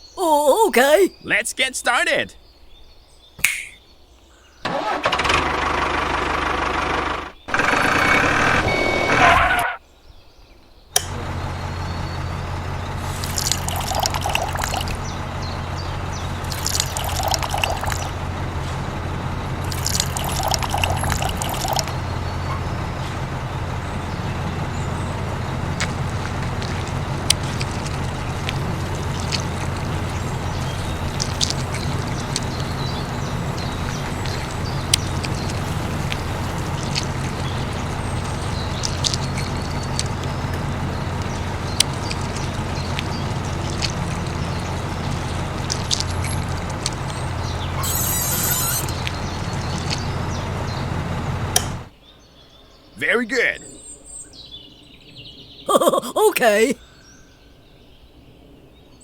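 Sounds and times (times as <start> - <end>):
small motor humming: 25.6 - 50.8.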